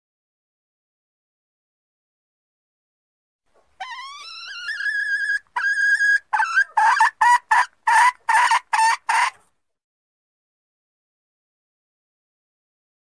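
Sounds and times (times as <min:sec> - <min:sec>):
hen lure call: 0:03.8 - 0:09.4.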